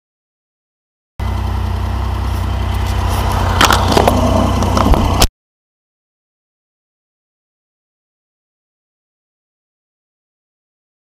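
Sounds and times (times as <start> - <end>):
train low rumble: 1.2 - 5.3
sharp knocks and clatters: 3.6 - 5.3.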